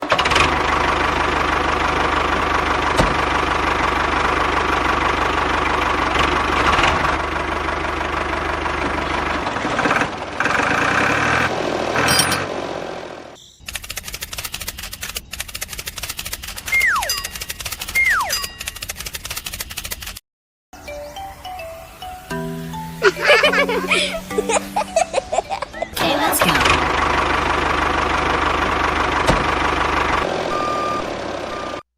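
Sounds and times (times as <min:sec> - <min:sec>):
tractor engine running: 0:00.0 - 0:20.2, 0:21.4 - 0:31.8
rapid even clicks: 0:13.6 - 0:20.2
falling whistle: 0:16.7 - 0:17.2, 0:17.9 - 0:18.4.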